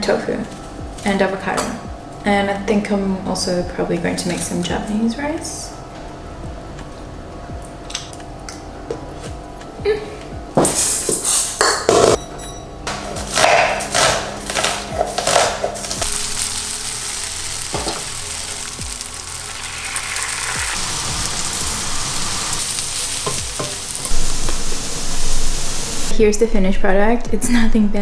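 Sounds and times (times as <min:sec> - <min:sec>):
tofu sizzling in a pan: 0:16.0 - 0:26.1.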